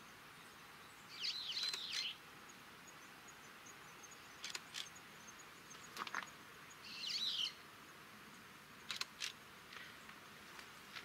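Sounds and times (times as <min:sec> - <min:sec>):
faint outdoor hiss: 0:00.0 - 0:11.0
bird call: 0:06.8 - 0:07.6.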